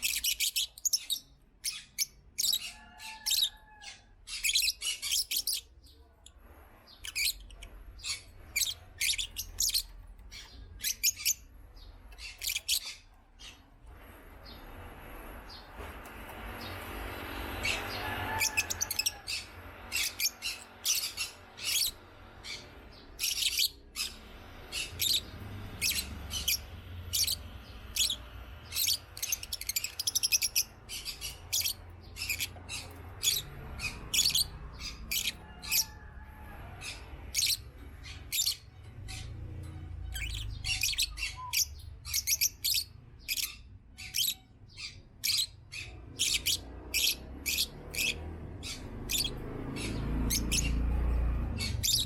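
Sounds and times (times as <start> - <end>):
birds chirping: 0.0 - 52.0
low rumble: 6.3 - 43.6.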